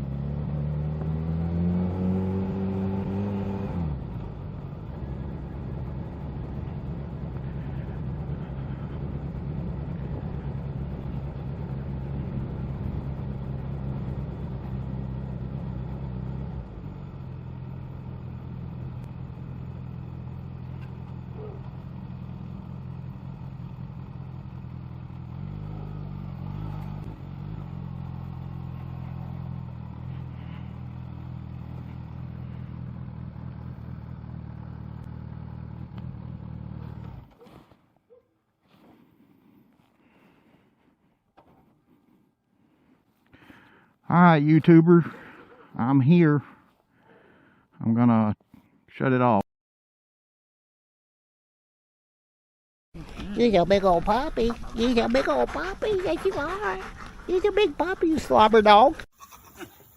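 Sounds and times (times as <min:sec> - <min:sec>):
motorcycle engine revving: 0:00.0 - 0:37.8.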